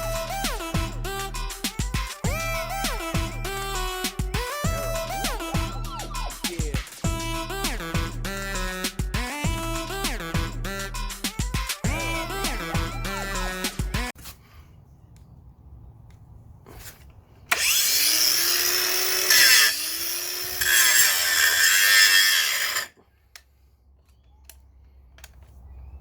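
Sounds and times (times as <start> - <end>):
angle grinder spinning: 17.5 - 23.0.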